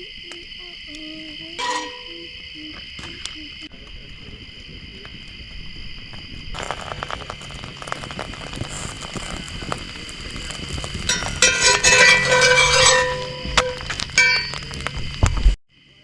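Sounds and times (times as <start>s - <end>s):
insects chirping: 0.0s - 16.0s
cookware and utensils clinking: 1.6s - 2.4s, 10.9s - 14.8s.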